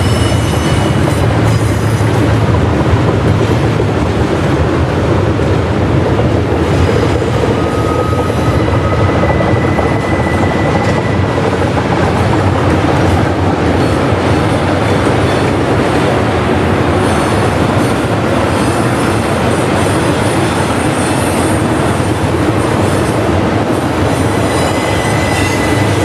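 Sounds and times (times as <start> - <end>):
train wheels rumbling on rail: 0.0 - 26.0
wheel squeal: 7.4 - 11.4, 24.4 - 26.0.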